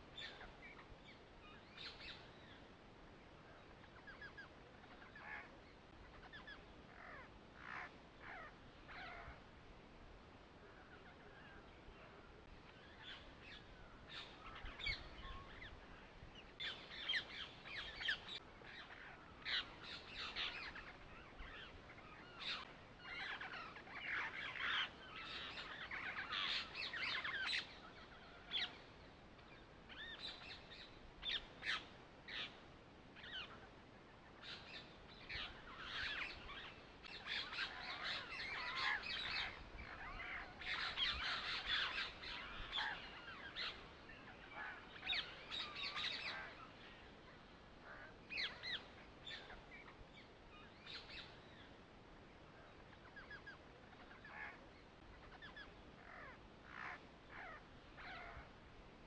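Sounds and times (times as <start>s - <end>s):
small birds chirping: 0.0s - 9.6s, 10.3s - 59.0s.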